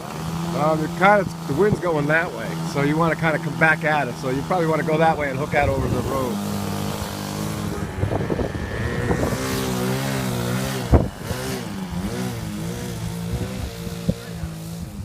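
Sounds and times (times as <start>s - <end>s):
model airplane engine: 0.0s - 15.0s
wind noise on microphone: 4.4s - 15.0s.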